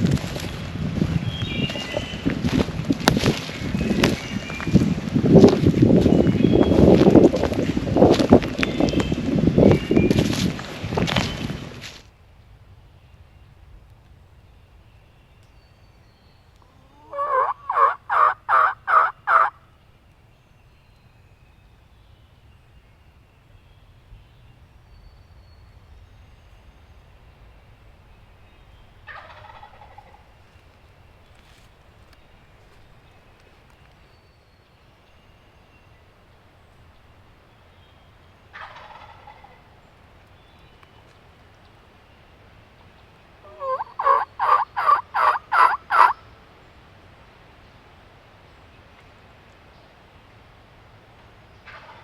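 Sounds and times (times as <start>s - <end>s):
wild turkey yelping: 16.6s - 19.6s, 29.1s - 30.3s, 38.5s - 39.8s, 43.4s - 46.2s, 51.6s - 52.0s.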